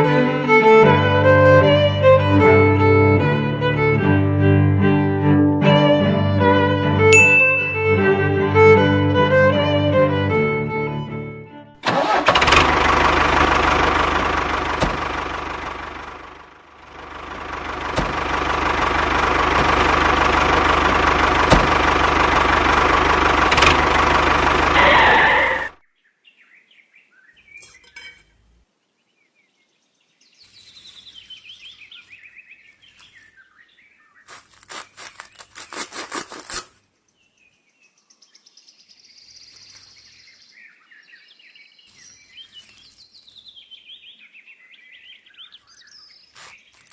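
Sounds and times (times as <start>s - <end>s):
motor running: 11.9s - 25.8s
faint bird chirps: 37.1s - 46.8s.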